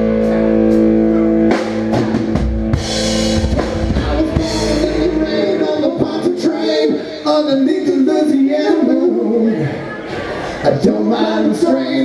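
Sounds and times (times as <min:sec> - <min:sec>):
instrumental rock band music: 0:00.0 - 0:07.2.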